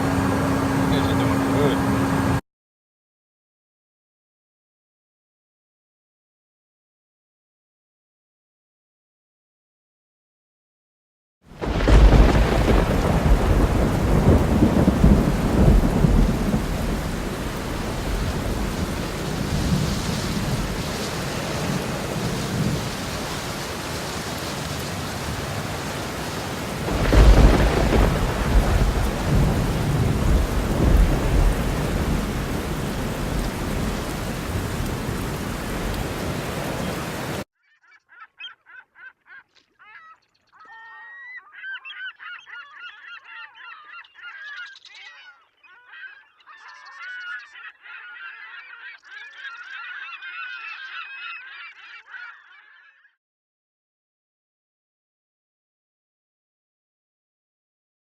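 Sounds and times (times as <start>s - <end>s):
heavy rain: 0.0s - 2.4s, 11.6s - 37.4s
thunder rumbling: 11.6s - 37.4s
geese honking: 36.5s - 53.0s.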